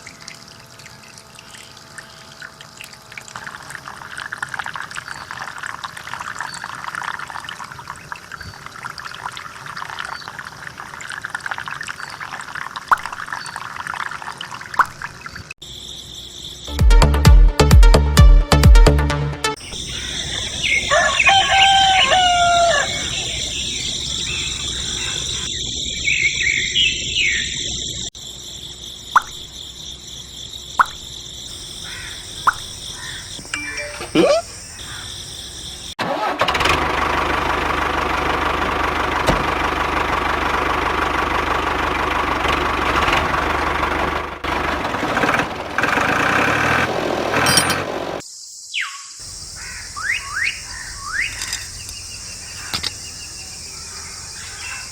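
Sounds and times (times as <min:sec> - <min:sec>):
small motor running: 0:00.0 - 0:04.4
rooster-like crow: 0:20.6 - 0:23.5.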